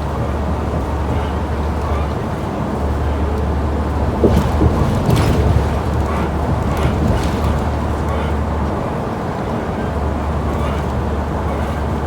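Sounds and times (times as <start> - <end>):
bus engine and road drone: 0.0 - 12.0
short rattles or knocks: 3.8 - 8.4.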